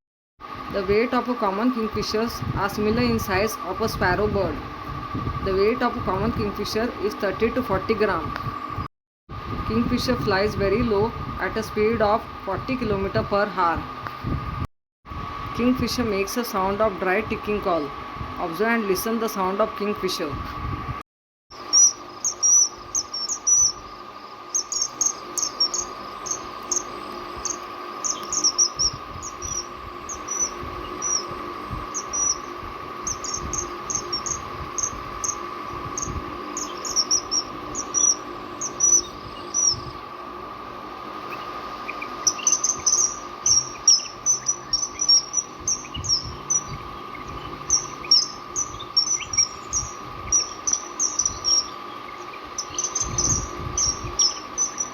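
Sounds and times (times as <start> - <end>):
steady hum: 0.4 - 54.9
kingfisher calling: 21.6 - 40.1, 41.2 - 54.9.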